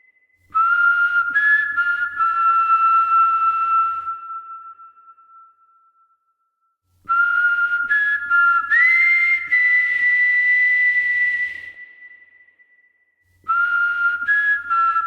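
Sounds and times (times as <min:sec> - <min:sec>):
high whistle-like music notes: 0:07.0 - 0:15.0.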